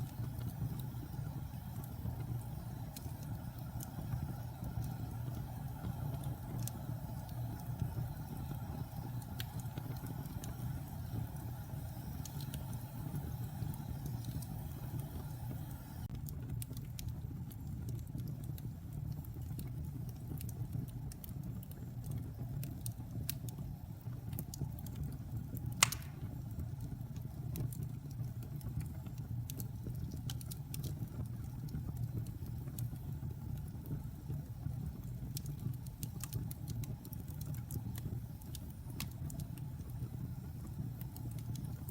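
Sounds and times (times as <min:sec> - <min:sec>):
wood fire burning and crackling: 0:00.0 - 0:41.9
sharp pop of fire: 0:25.8 - 0:26.4.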